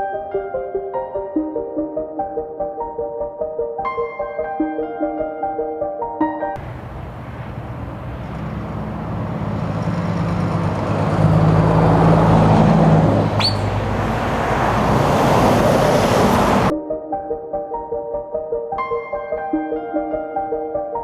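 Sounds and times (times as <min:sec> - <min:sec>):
truck diesel engine running: 0:06.6 - 0:16.7
sharp high squeal: 0:13.1 - 0:14.8.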